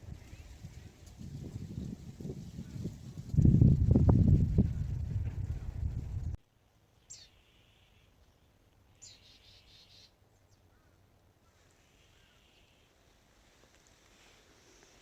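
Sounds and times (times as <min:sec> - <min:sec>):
outdoor ambience: 0:00.0 - 0:15.0
faint bird chirps: 0:07.0 - 0:13.0.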